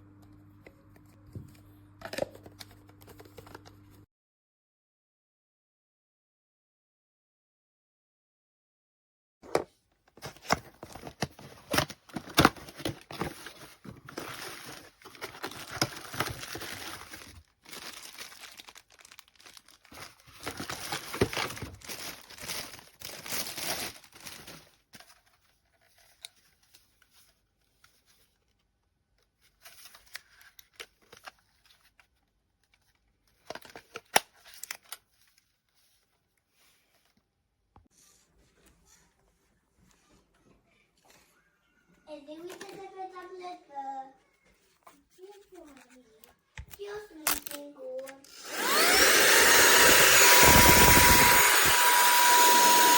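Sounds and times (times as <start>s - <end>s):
crinkling and rustling handling: 9.4s - 41.5s, 42.3s - 43.6s, 44.2s - 50.4s.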